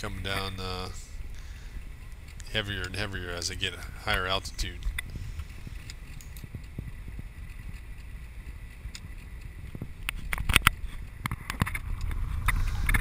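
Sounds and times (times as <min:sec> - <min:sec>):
car road noise rumble: 0:00.0 - 0:13.0
sharp clicks: 0:04.7 - 0:13.0.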